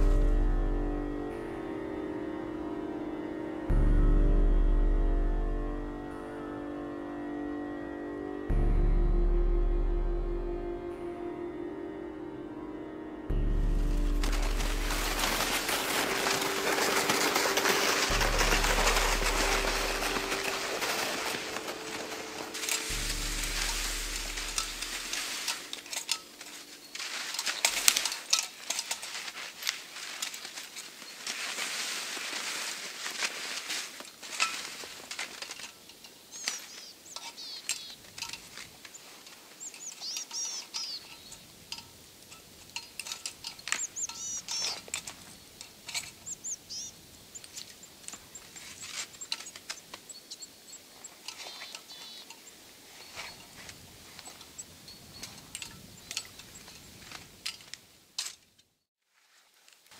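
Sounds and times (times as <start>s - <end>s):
dense rustle: 0.0s - 1.2s, 13.4s - 59.9s
clicks and crunches: 14.0s - 50.5s, 51.1s - 58.8s
small birds chirping and trilling: 35.3s - 57.4s.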